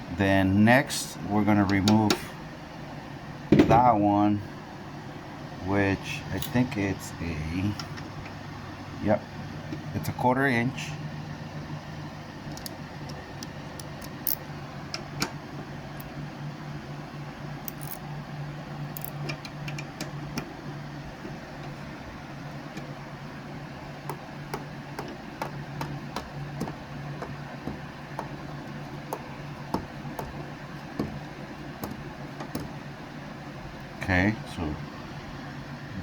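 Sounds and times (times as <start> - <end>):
steady low hum: 0.0 - 36.0
socket wrench clicking: 17.7 - 18.0, 19.0 - 20.1.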